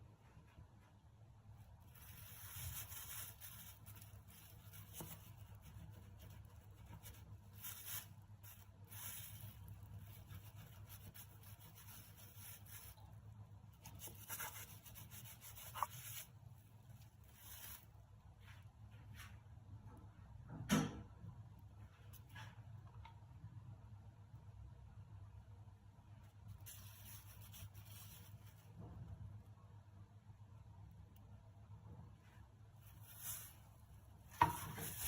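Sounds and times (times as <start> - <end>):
faint low hum: 0.0 - 35.0
rustling of things handled: 0.2 - 19.5, 21.7 - 22.8, 26.2 - 29.3, 32.1 - 35.0.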